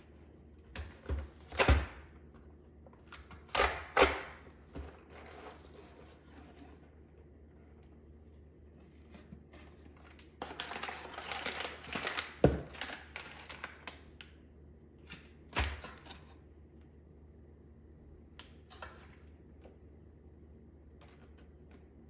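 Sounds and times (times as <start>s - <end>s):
packaging rustling and crinkling: 9.2s - 14.2s.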